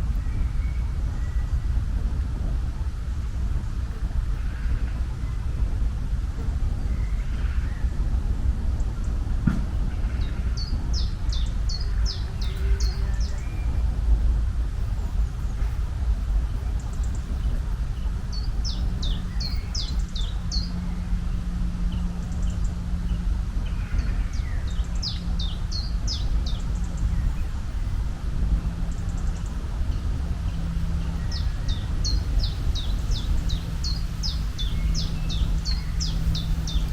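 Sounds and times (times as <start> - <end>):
steady low rumble: 0.0 - 36.9
small bird chirping: 10.2 - 14.2, 16.5 - 20.9, 28.9 - 36.9.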